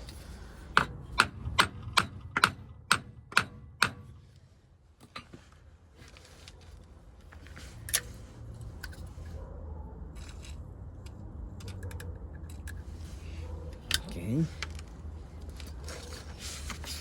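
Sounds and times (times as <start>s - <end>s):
hammer striking axle shaft: 0.7s - 4.2s.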